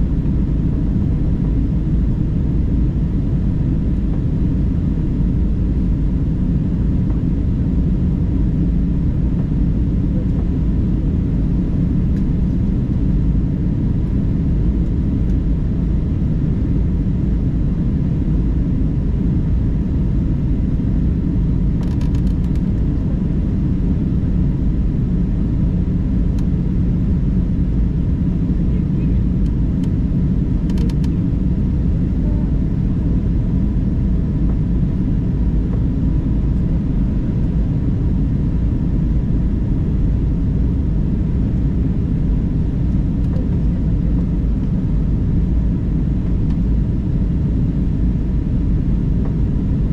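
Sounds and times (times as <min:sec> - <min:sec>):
airliner cabin rumble: 0:00.0 - 0:49.9
faint steady hum: 0:00.0 - 0:49.9.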